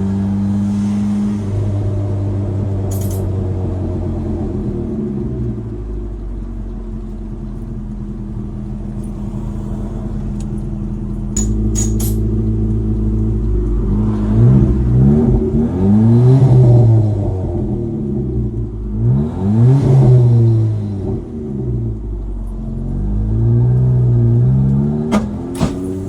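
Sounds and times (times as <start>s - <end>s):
pickup engine revving: 6.2s - 26.0s.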